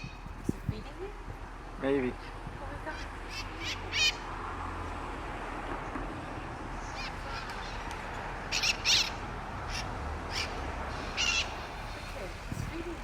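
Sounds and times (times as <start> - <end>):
parrots screeching: 2.9 - 4.3, 6.9 - 11.8.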